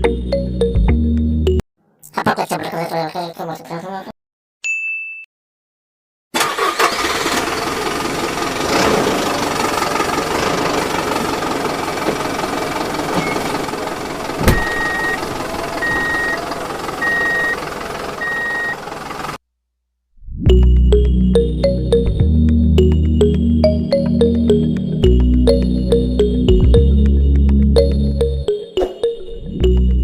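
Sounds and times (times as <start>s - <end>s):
motor running: 8.1s - 19.4s
short high beeps: 14.6s - 15.2s, 15.8s - 16.4s, 17.0s - 17.6s, 18.2s - 18.8s.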